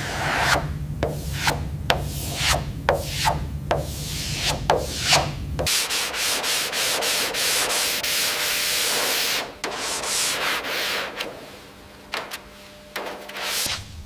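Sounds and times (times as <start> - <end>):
abrasive sanding of a surface: 1.3 - 11.4, 13.0 - 13.8.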